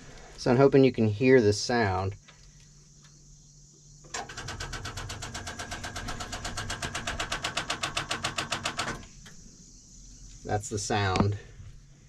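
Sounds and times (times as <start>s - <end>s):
starter clicking rapidly: 4.1s - 9.1s.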